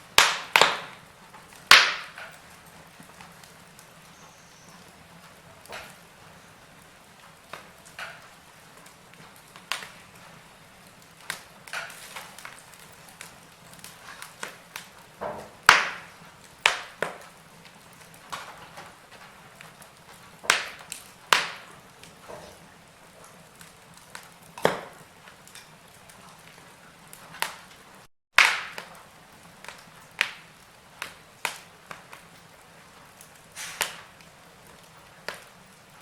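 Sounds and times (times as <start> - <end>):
faint steady hiss: 0.0 - 28.1
wood fire crackling: 0.0 - 36.0.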